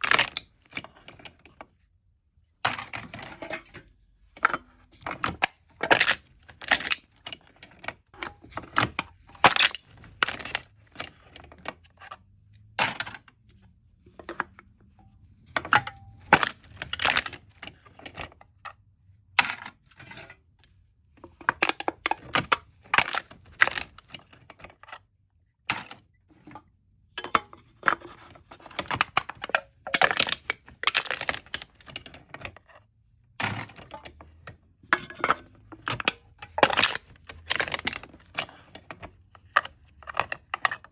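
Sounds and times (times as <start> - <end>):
aluminium cans being crushed: 0.0 - 1.4, 2.6 - 11.8, 15.5 - 18.6, 21.3 - 24.9, 25.6 - 40.9.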